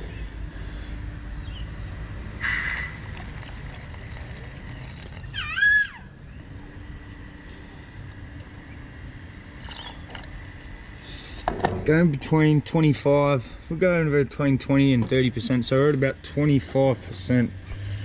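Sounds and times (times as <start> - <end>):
liquid sloshing gurgle: 2.6 - 5.4, 9.6 - 10.7
steady low rumble: 6.0 - 18.0.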